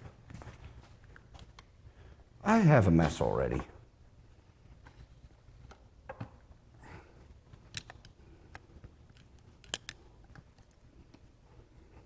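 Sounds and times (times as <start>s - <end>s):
small metal parts clicking: 9.1s - 10.8s.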